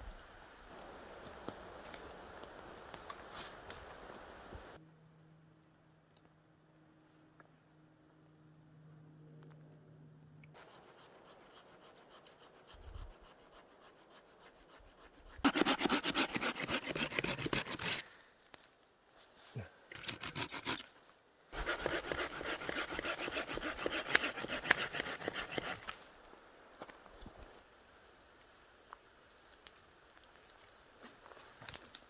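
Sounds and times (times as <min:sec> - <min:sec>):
hand saw cutting firewood: 0:10.6 - 0:18.1, 0:19.9 - 0:21.0, 0:21.6 - 0:26.0.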